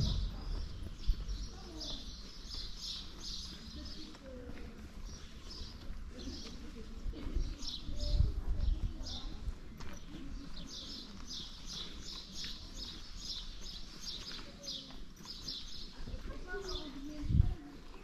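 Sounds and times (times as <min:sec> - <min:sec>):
low rumble: 0:00.0 - 0:01.6
small birds chirping: 0:00.0 - 0:18.0.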